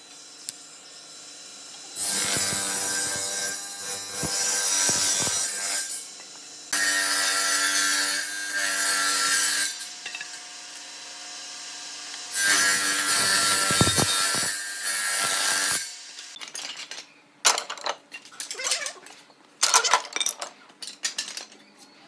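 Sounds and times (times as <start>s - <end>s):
electric saw cutting wood: 0.0s - 16.4s.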